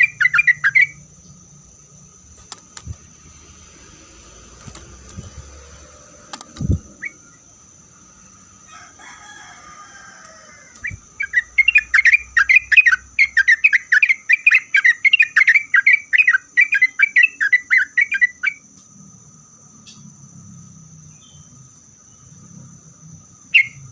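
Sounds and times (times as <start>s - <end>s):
bird singing chirping notes: 0.0s - 1.4s, 6.6s - 7.5s, 10.8s - 18.6s, 23.4s - 23.9s.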